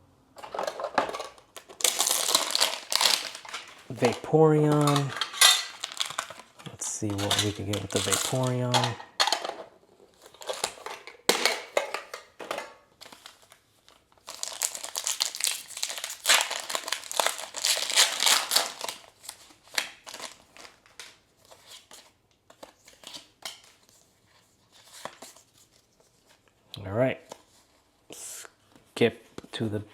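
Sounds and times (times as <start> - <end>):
foil wrapper crinkling: 1.3 - 9.0, 13.0 - 23.9.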